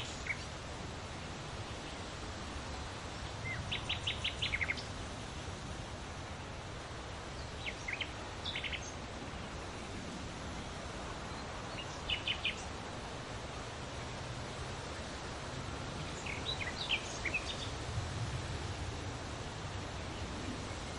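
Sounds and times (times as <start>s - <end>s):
outdoor background hiss: 0.0s - 20.9s
bird chirping: 3.4s - 4.9s, 7.4s - 9.0s, 16.2s - 17.8s.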